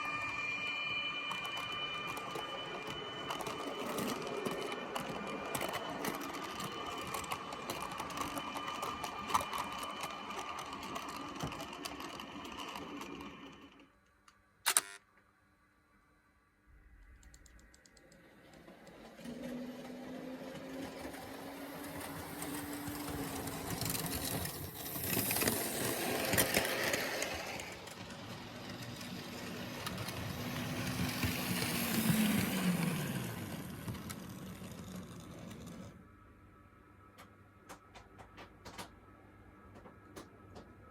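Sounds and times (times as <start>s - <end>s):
train wheels clicking on rails: 0.0s - 13.8s, 18.1s - 35.9s, 37.2s - 39.0s.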